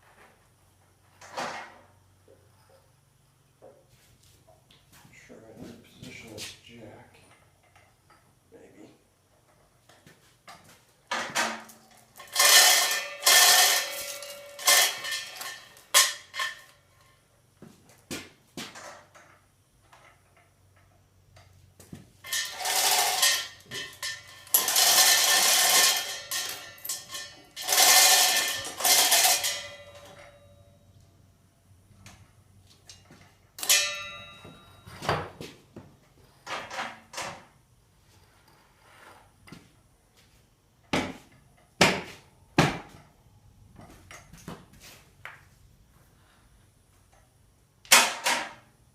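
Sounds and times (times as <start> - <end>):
metal jack scraping: 11.8 - 16.8, 22.2 - 30.5
ringing metal clank: 12.2 - 16.8, 22.2 - 31.0, 33.6 - 35.3.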